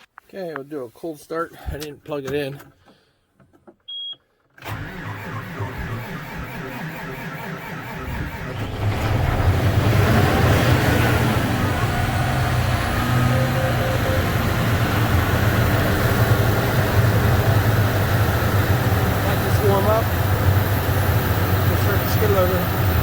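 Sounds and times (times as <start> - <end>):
diesel tractor engine starting and idling: 4.6 - 23.0.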